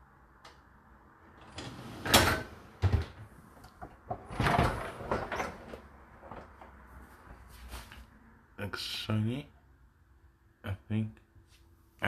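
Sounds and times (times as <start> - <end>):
dishwasher rack rattling: 4.2 - 5.8.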